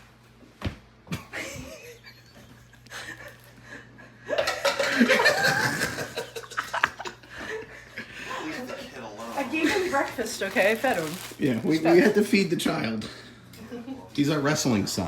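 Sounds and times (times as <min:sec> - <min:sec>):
people laughing loudly: 0:04.4 - 0:07.9.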